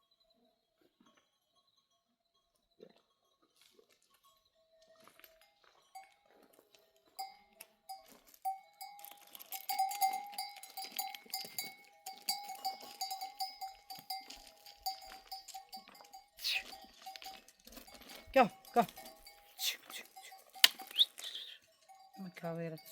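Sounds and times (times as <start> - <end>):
metal livestock bells clanking: 1.5 - 22.9.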